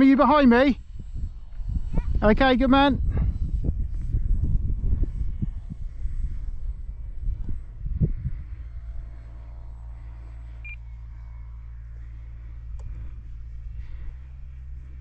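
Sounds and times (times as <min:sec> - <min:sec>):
wind rumbling on microphone: 0:00.0 - 0:15.0
faint click: 0:12.7 - 0:12.9.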